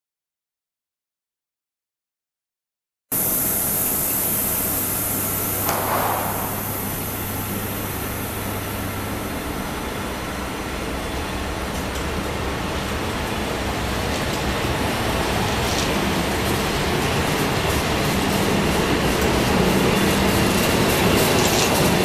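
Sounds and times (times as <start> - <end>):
train rumbling and hissing: 3.2 - 22.0
sharp clack: 5.6 - 7.8.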